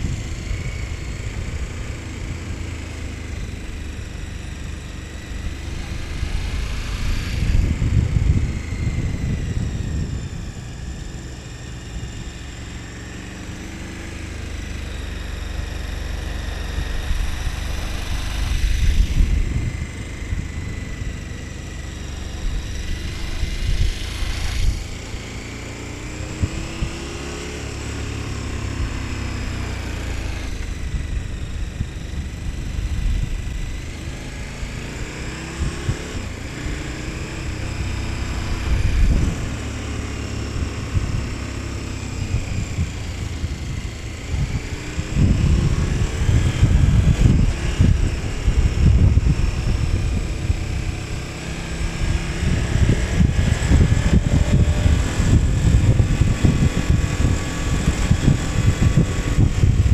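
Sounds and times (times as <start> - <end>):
motorcycle engine revving: 0.0 - 59.9
low buffeting rumble: 3.4 - 13.3, 14.5 - 26.9, 42.1 - 51.1, 51.8 - 59.9.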